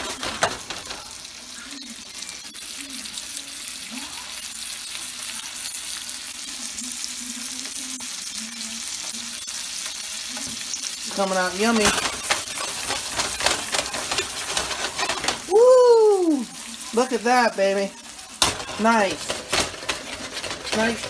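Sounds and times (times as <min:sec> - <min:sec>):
fish fillets sizzling in skillet: 0:00.0 - 0:21.0.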